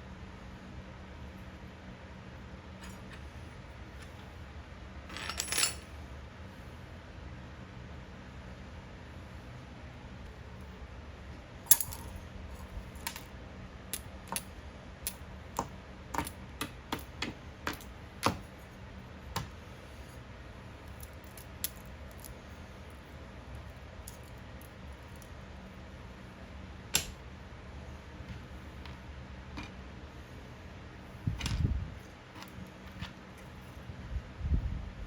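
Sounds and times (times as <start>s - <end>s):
metal parts and tools clinking: 5.1s - 5.9s, 11.7s - 13.3s.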